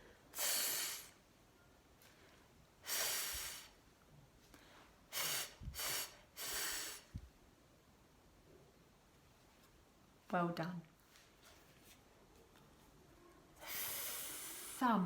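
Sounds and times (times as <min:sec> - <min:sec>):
person making breathy th sound: 0:05.1 - 0:07.2, 0:13.6 - 0:14.8.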